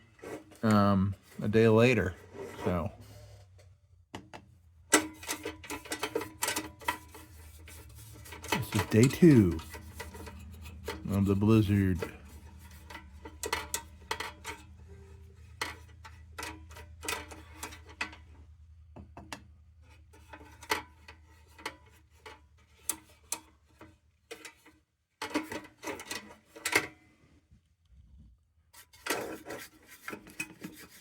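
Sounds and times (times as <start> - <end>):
low steady hum: 0.1 - 21.3
brush on metal: 5.0 - 17.9, 28.7 - 31.0.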